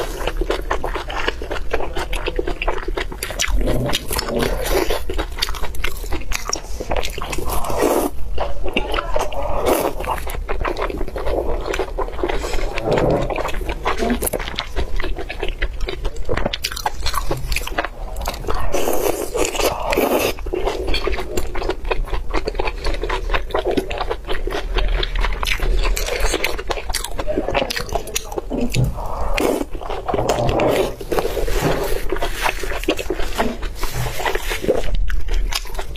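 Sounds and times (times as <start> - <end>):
close chewing with mouth clicks: 0.0 - 35.9.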